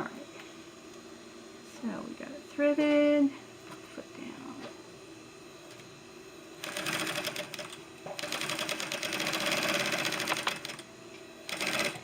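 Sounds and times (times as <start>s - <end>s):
sewing machine stitching: 6.6s - 10.8s, 11.5s - 12.0s.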